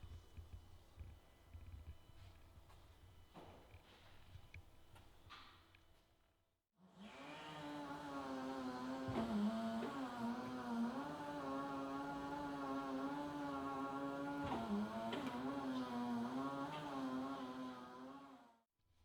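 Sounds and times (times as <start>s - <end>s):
electric forklift motor hum: 7.0s - 18.5s.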